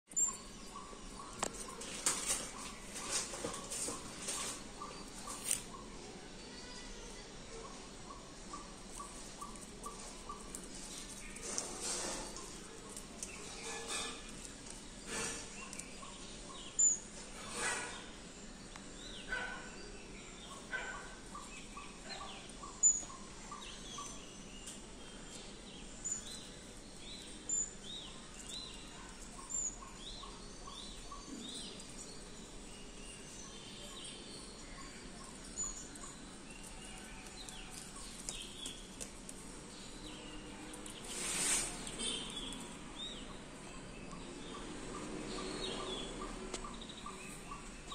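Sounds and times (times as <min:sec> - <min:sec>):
small birds chirping: 0:00.0 - 0:47.9
rustling: 0:01.4 - 0:05.8, 0:08.5 - 0:16.2, 0:30.3 - 0:43.2.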